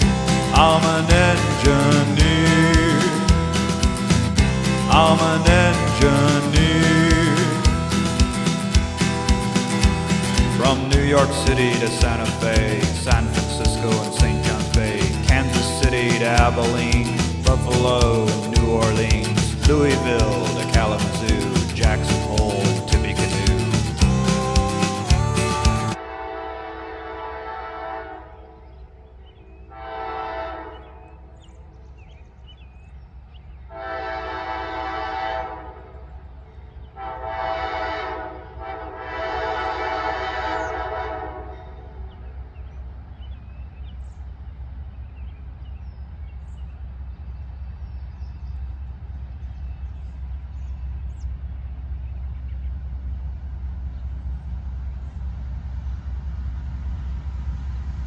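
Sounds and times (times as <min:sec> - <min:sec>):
locomotive air horn blasts: 0:00.0 - 0:13.2, 0:21.3 - 0:28.6, 0:29.7 - 0:31.2, 0:33.7 - 0:36.1, 0:37.0 - 0:42.0
train rumbling past: 0:00.0 - 0:58.0.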